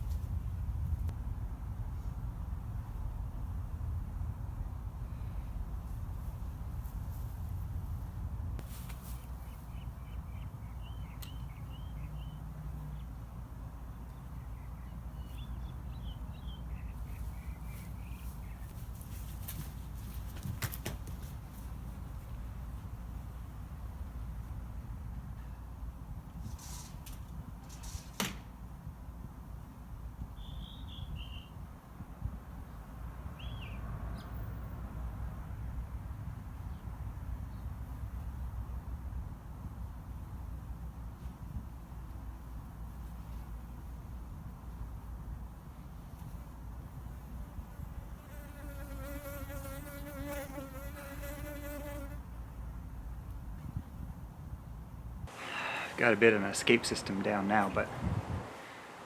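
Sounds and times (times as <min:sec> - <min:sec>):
steady low rumble: 0:00.0 - 0:08.6
bird chirping: 0:09.4 - 0:13.2, 0:14.0 - 0:18.8, 0:30.4 - 0:31.6, 0:33.4 - 0:34.6.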